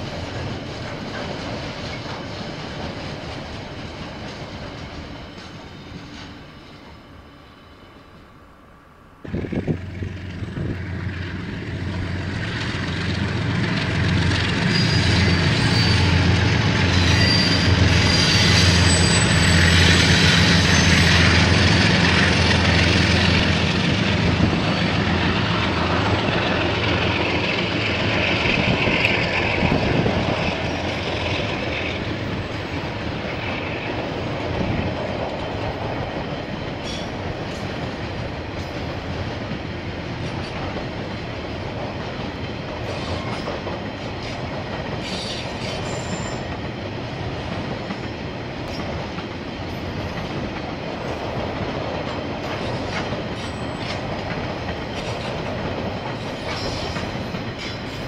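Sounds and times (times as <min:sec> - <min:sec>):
train wheels rolling and clattering: 0:00.0 - 0:07.4, 0:09.3 - 0:58.0
locomotive engine drone: 0:08.4 - 0:37.1
thin wheel squeals: 0:14.7 - 0:16.2, 0:16.9 - 0:19.7.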